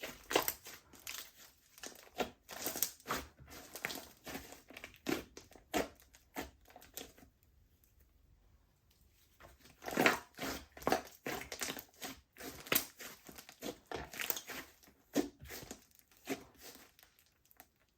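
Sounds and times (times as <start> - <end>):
slime squished by hand: 0.0 - 7.3.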